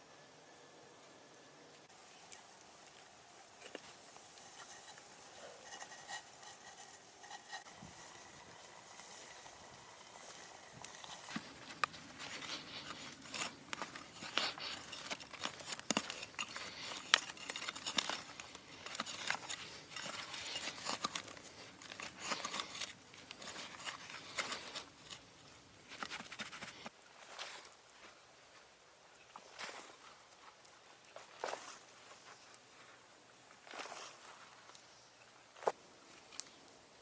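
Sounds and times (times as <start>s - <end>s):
crinkling and crackling: 1.7s - 28.2s, 35.5s - 37.0s.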